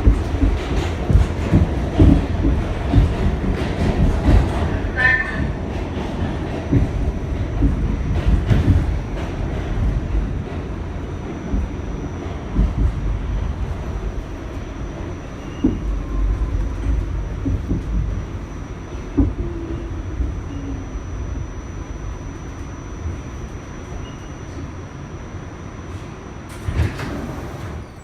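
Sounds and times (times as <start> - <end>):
clacks over rails: 0.0 - 20.4
wheel and track rumble: 0.0 - 24.7, 25.8 - 28.0.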